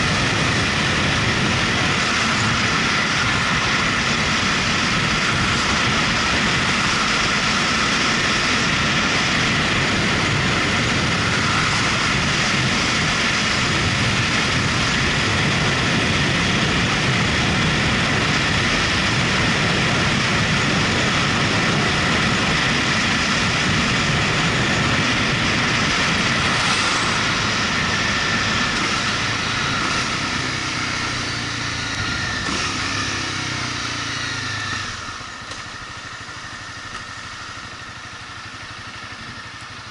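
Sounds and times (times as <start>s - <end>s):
wind noise: 0.0s - 36.9s
motorcycle engine roar: 0.0s - 39.9s.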